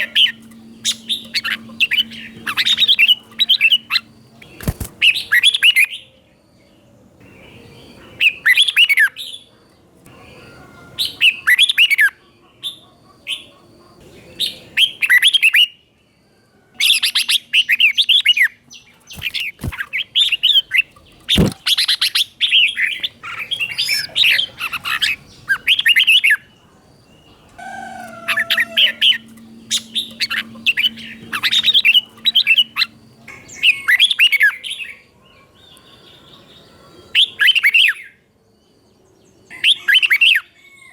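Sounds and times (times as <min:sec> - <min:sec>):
bulbul singing warbling phrases: 0:00.0 - 0:06.1, 0:16.9 - 0:35.0.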